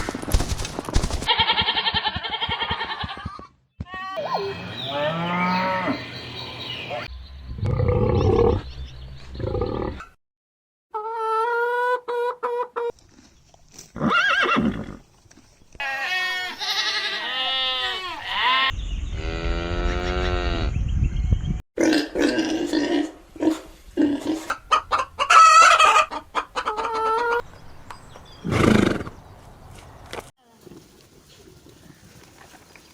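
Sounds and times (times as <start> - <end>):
farm animals calling: 0.0 - 3.3, 4.2 - 8.7, 24.3 - 27.4.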